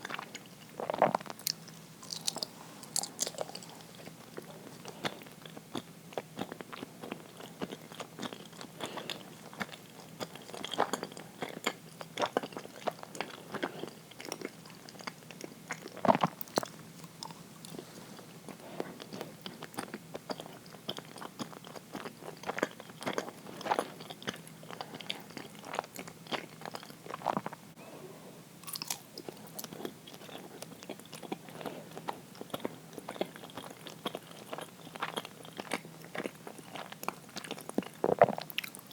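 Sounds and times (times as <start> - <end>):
wet chewing clicks and smacks: 28.7 - 38.9.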